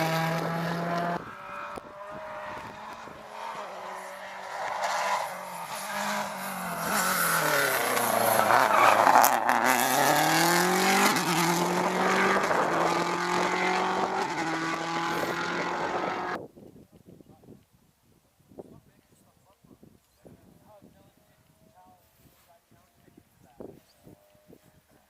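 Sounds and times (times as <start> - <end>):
rally car engine accelerating: 0.0 - 16.4.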